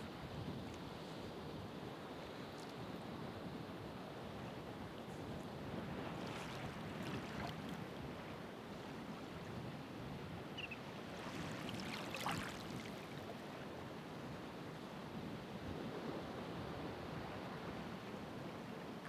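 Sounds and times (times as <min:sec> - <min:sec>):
ocean waves washing ashore: 0:00.0 - 0:19.0
fizzing wave splash: 0:11.4 - 0:13.0.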